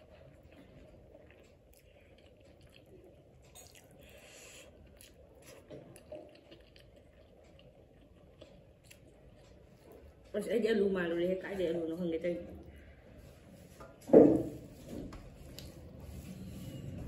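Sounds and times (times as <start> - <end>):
chewing food: 0.0 - 10.4.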